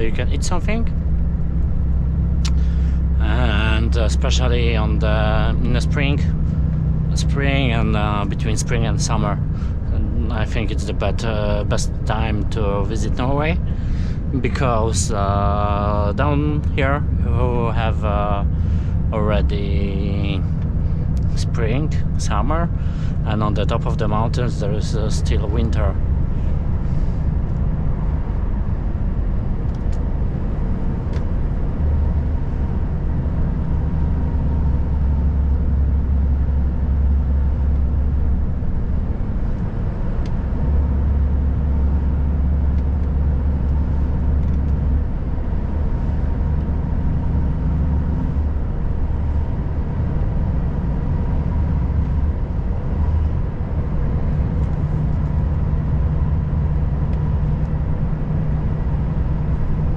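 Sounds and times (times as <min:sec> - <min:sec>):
truck diesel engine droning: 0:00.0 - 0:59.9.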